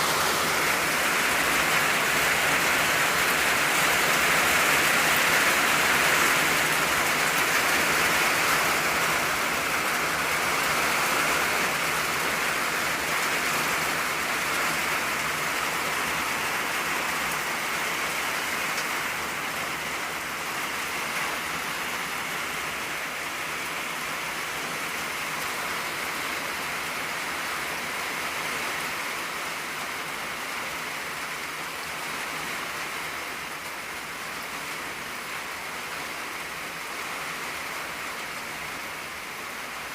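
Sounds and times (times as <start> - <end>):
rain on a tin roof: 0.0 - 39.9.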